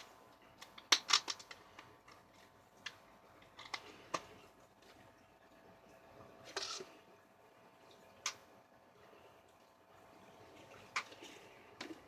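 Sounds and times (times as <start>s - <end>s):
handling clicks and crackles: 0.0s - 4.4s.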